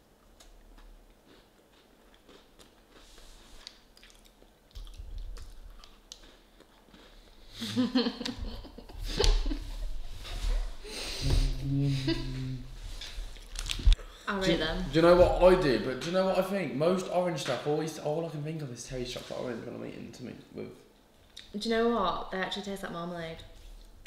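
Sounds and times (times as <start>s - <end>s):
people crunching biscuits: 0.4s - 7.6s
laughter: 7.6s - 9.8s.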